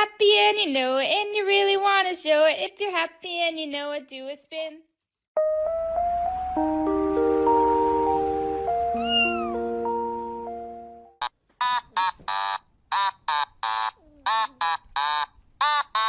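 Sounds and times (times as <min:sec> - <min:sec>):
children's song: 0:00.0 - 0:04.8, 0:05.5 - 0:10.3
cat meowing: 0:09.0 - 0:09.6.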